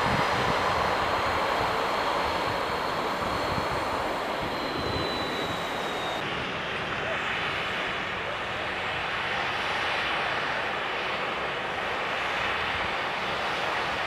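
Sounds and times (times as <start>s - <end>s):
thin high whine: 0.0s - 6.2s
jet engine rushing: 0.0s - 14.0s.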